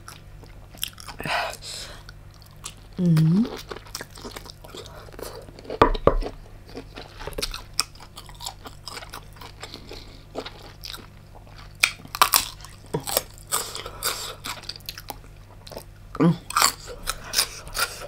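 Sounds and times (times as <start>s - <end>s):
chewing and biting prawn: 3.5s - 15.9s, 16.5s - 18.0s.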